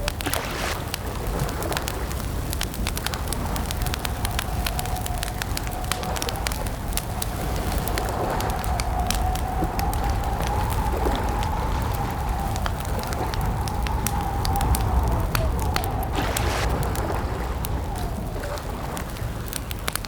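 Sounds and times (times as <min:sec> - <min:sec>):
campfire crackling and popping: 0:00.0 - 0:20.0
steady low rumble: 0:00.0 - 0:20.0.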